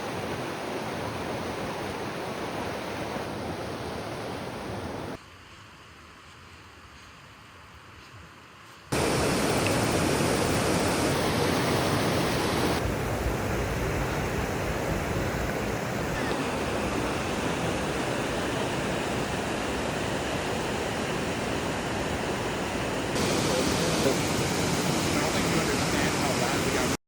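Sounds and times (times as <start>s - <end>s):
waterfall rushing: 8.9s - 27.0s.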